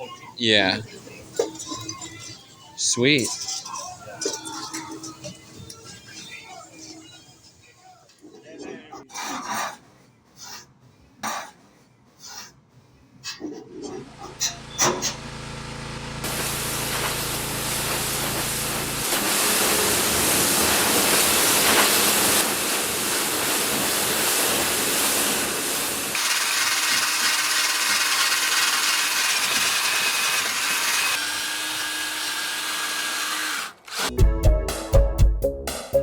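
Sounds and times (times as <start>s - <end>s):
workshop power tools running: 14.0s - 34.2s
music: 34.1s - 36.0s.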